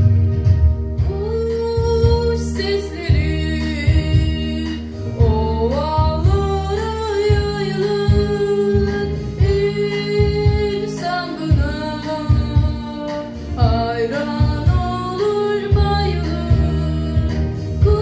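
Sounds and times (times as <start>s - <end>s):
instrumental accompaniment: 0.0s - 18.0s
woman singing in deep voice: 1.0s - 18.0s.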